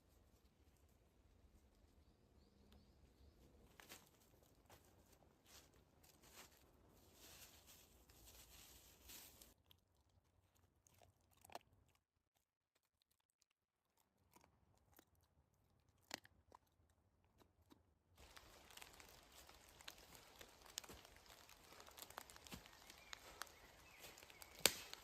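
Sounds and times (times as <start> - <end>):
faint crunches and clicks: 17.3 - 25.0.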